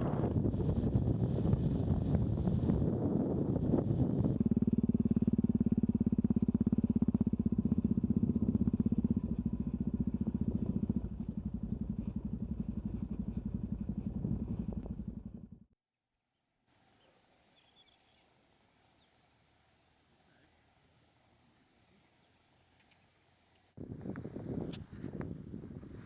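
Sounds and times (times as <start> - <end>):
wind noise: 0.0 - 5.0, 23.8 - 26.0
motorcycle engine running: 0.0 - 15.8.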